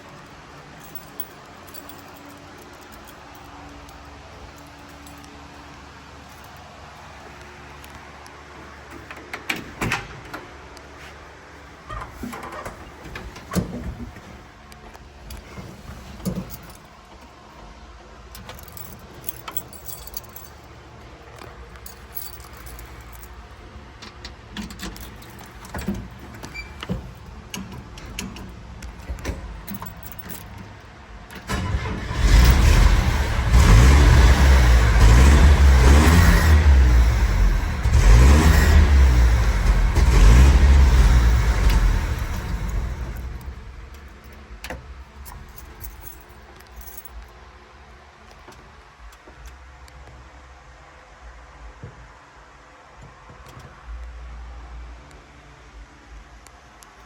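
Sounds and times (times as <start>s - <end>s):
pickup engine cranking and starting: 24.0s - 45.8s.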